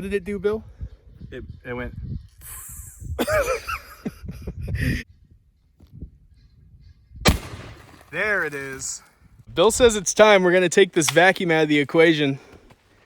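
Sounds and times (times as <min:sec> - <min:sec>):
gunshot crack: 0:07.3 - 0:08.4.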